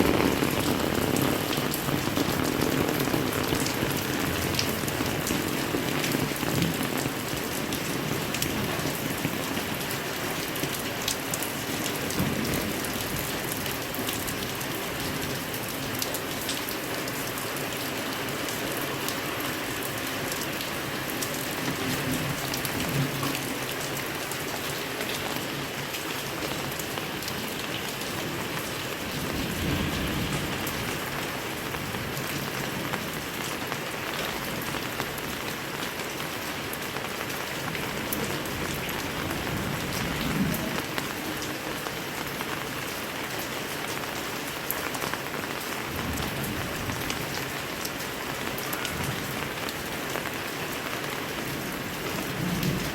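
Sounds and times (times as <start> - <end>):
heavy rain hissing: 0.0 - 52.9
raindrops ticking close by: 0.0 - 52.9.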